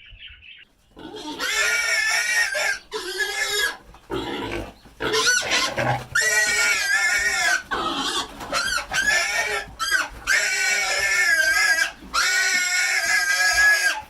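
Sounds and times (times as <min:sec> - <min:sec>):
pigs squealing: 0:01.0 - 0:14.0.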